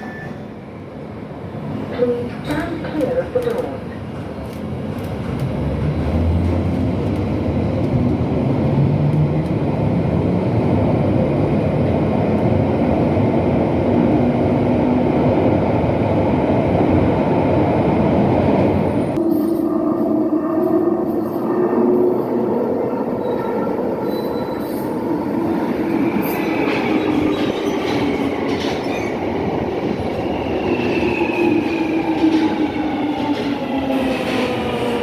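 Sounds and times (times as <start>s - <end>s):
train arriving with steady hum: 0.0s - 35.0s.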